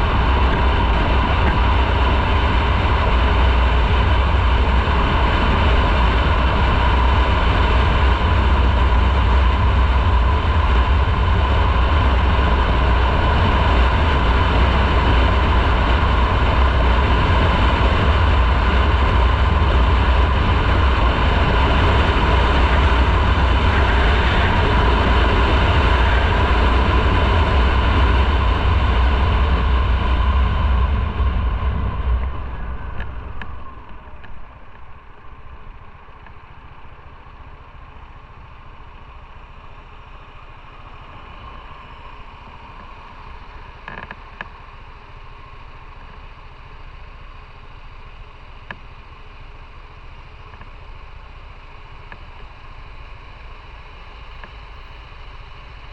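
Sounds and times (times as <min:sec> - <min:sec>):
rushing wind noise: 0:00.0 - 0:39.2
motorcycle engine: 0:00.0 - 0:55.9.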